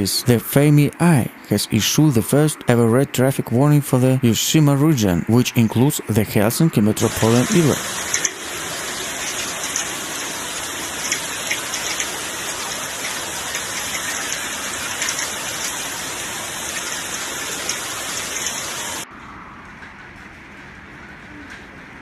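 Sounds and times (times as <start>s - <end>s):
raindrops ticking: 7.0s - 19.0s
heavy rain falling: 7.0s - 19.1s.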